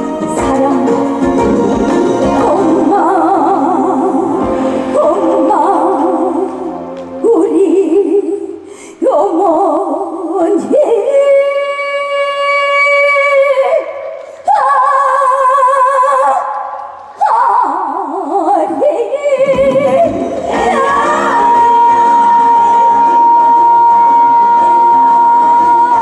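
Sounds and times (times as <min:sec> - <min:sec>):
woman singing with vibrato: 0:00.0 - 0:26.0.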